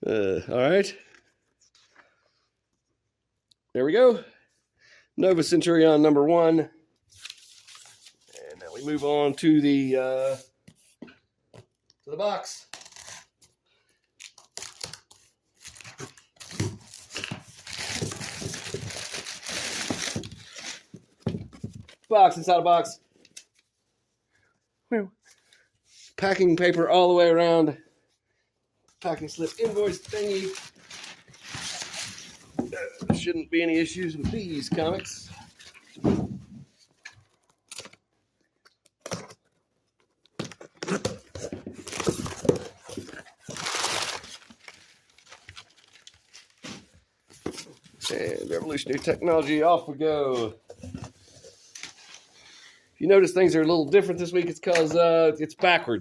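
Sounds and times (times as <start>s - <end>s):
cardboard tearing and crinkling: 14.2s - 21.0s, 29.3s - 32.7s, 40.5s - 46.9s
packing paper rustling: 14.2s - 22.1s, 29.1s - 33.2s, 39.4s - 49.7s.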